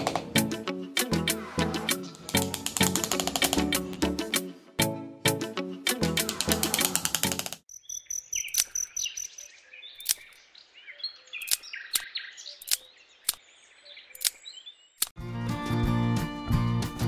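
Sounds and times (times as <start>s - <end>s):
music track: 0.0s - 7.5s, 15.2s - 17.0s
sharp clicks: 2.2s - 4.0s, 6.1s - 7.7s, 8.4s - 8.9s, 10.0s - 10.4s, 11.4s - 13.4s, 14.1s - 14.4s, 15.0s - 15.2s
small birds chirping: 7.6s - 15.2s.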